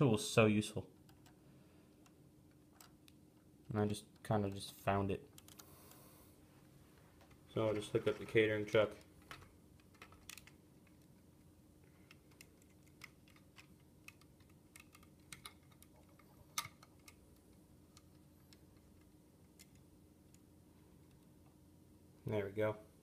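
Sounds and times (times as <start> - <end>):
plastic toy bricks clicking: 9.3 - 11.0, 12.1 - 17.2.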